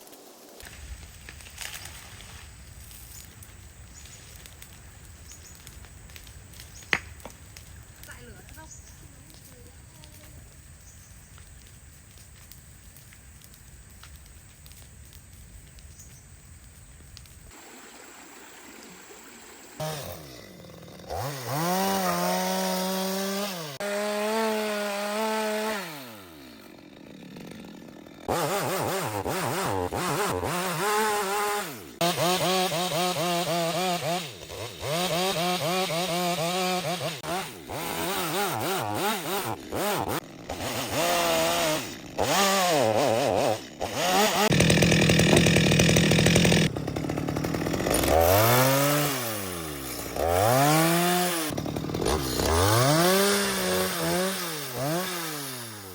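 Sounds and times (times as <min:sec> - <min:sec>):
chainsaw cutting wood: 0:05.6 - 0:08.7, 0:19.8 - 0:55.9.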